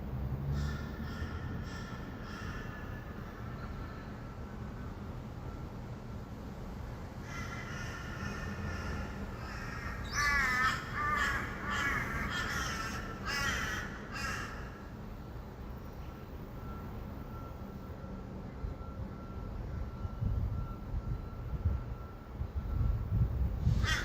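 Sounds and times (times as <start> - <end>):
distant traffic hum: 0.0 - 24.0
harsh raspy bird squawks: 7.2 - 14.7.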